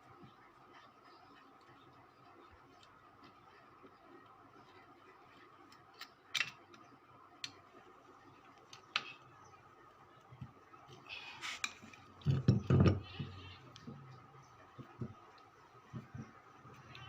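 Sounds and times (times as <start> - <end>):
faint steady hum: 0.0 - 17.0
light clicks and taps: 7.4 - 7.6.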